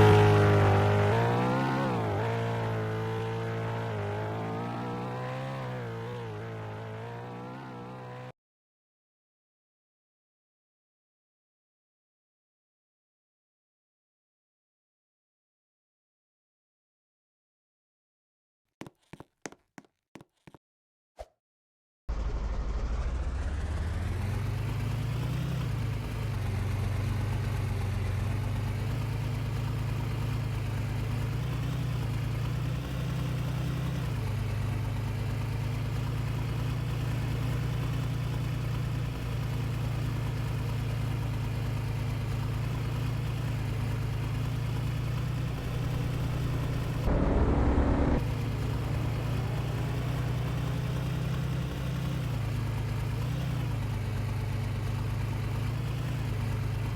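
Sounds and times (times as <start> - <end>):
vehicle engine humming: 0.0 - 8.3, 22.1 - 56.9.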